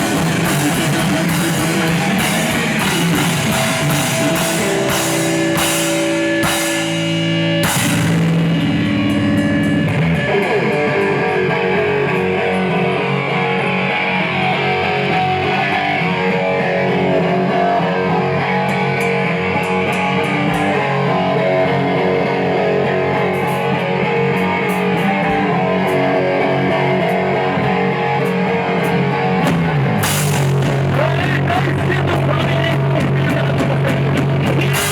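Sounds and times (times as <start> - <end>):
cymbal crashes: 0.0 - 10.7
rock band playing live: 0.0 - 34.9.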